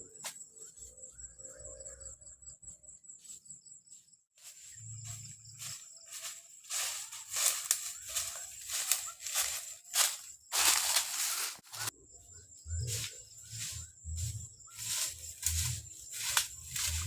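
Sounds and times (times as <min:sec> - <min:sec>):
high insect drone: 0:00.0 - 0:17.0
rustling crunches in dry leaves: 0:04.4 - 0:11.9, 0:12.8 - 0:17.0.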